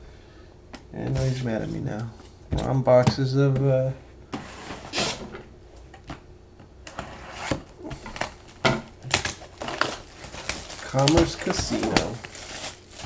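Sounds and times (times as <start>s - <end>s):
cards and packaging rustling: 7.8s - 13.0s.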